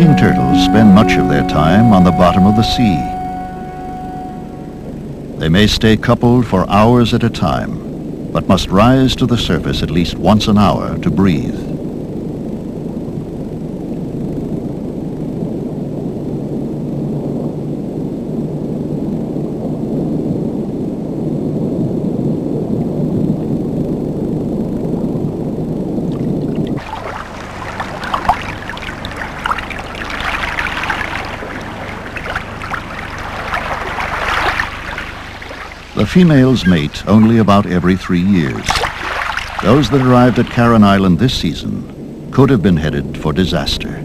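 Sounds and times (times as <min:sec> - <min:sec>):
muffled water rushing: 0:00.0 - 0:17.4, 0:21.6 - 0:44.0
water sloshing and splashing: 0:26.1 - 0:37.7, 0:38.5 - 0:41.0.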